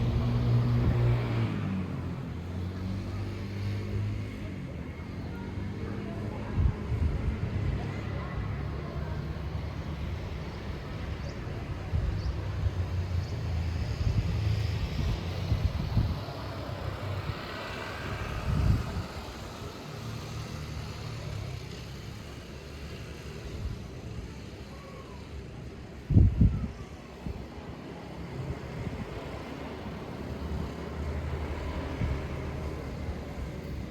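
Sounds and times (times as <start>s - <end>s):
wind buffeting microphone: 6.5s - 8.5s, 9.2s - 19.8s, 26.0s - 27.6s.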